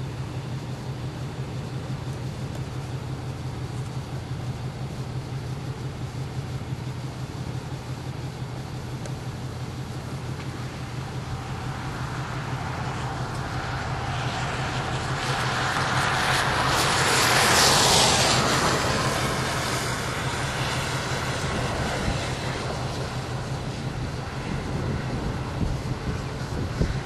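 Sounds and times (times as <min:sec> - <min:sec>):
low engine hum: 0:00.0 - 0:27.0
vehicle passing: 0:10.8 - 0:26.0.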